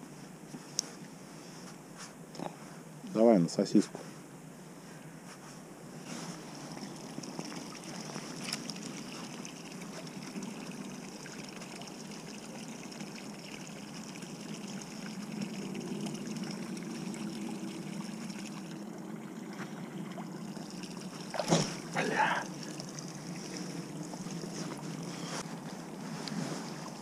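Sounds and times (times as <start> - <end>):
river water trickling: 6.0 - 27.0.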